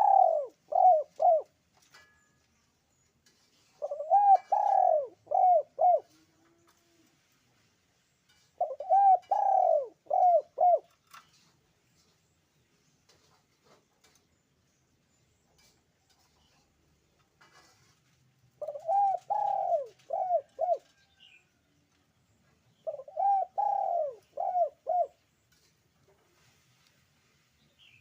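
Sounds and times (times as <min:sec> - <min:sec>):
dove cooing: 0:00.0 - 0:01.6, 0:03.8 - 0:06.9, 0:08.6 - 0:11.0, 0:18.6 - 0:21.0, 0:22.8 - 0:25.2.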